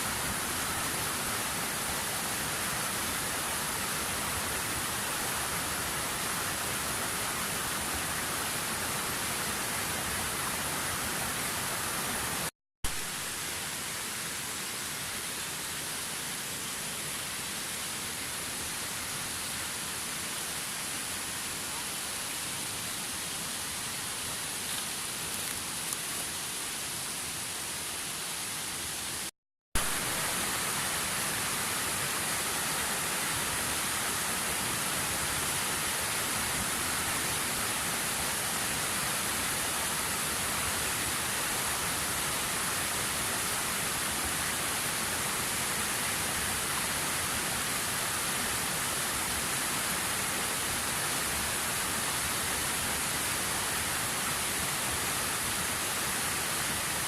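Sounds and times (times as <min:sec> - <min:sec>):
waterfall roaring: 0:28.4 - 0:57.0.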